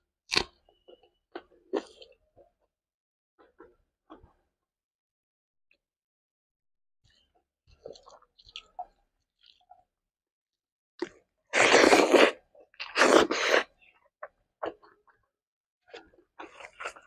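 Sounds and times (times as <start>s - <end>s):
chewing a mouthful: 7.8s - 9.8s, 15.9s - 17.0s.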